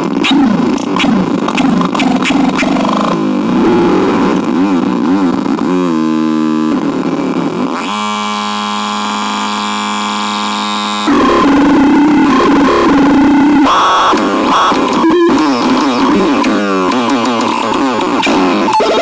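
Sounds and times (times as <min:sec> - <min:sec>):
harsh synthesizer tones: 0:00.0 - 0:05.2, 0:11.0 - 0:19.0
distorted noisy texture: 0:00.0 - 0:07.6, 0:10.9 - 0:19.0.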